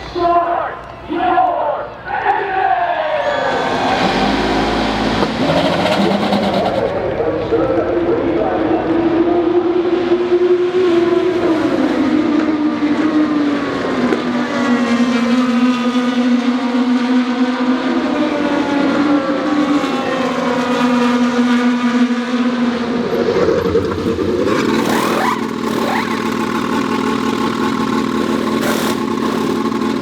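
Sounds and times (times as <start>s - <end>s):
race car engines at speed: 2.9s - 30.0s
race car passing: 3.2s - 8.0s, 8.6s - 30.0s.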